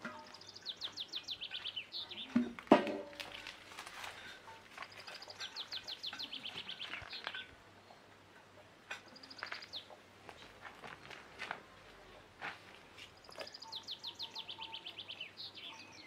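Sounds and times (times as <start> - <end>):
small birds chirping: 0.0 - 2.6, 3.2 - 11.2, 11.9 - 16.0
fast bird trill: 5.0 - 7.5, 13.5 - 16.0.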